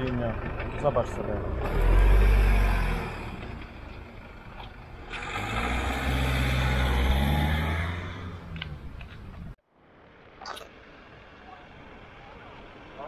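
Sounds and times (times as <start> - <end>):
car engine accelerating: 0.0 - 9.6
road noise: 0.0 - 13.0.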